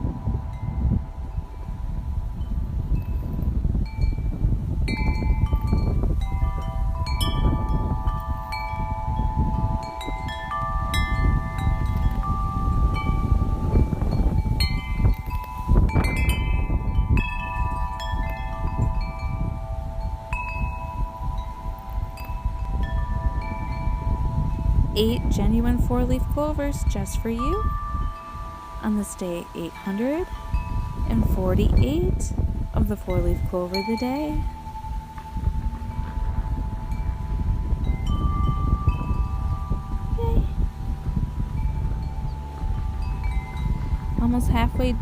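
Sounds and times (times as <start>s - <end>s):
metal wind chimes ringing: 0.0s - 45.0s
wind rumble on microphone: 0.0s - 45.0s.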